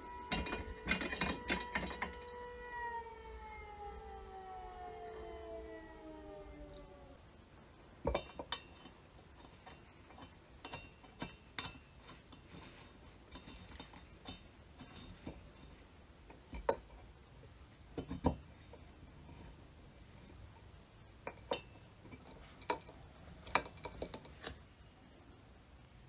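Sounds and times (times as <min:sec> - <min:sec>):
metal parts clinking and knocking: 0:00.3 - 0:02.4, 0:21.3 - 0:24.6.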